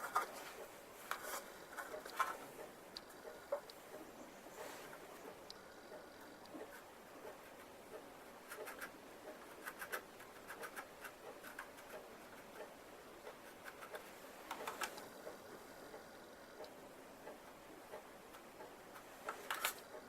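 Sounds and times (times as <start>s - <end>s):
light scratches and clicks: 0.0s - 20.0s.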